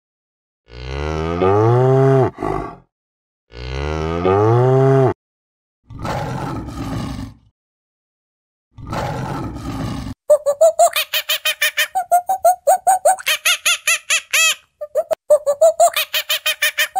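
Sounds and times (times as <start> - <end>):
cow mooing: 0.7 - 2.8, 3.5 - 5.2
lion roaring: 0.7 - 2.9, 5.9 - 7.5, 8.8 - 10.2.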